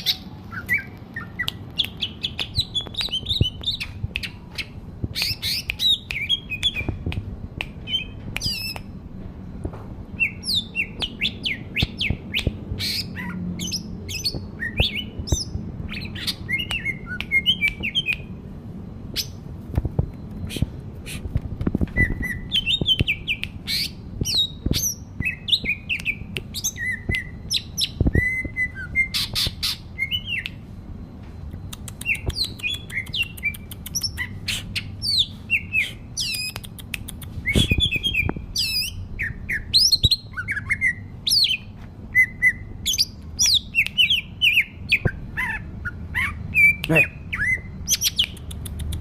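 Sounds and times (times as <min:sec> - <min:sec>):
small bird singing and chirping: 0:00.0 - 0:07.0, 0:10.2 - 0:18.4, 0:21.8 - 0:30.6, 0:31.7 - 0:49.0
sharp clicks: 0:31.5 - 0:34.2, 0:36.2 - 0:38.4, 0:48.0 - 0:49.0.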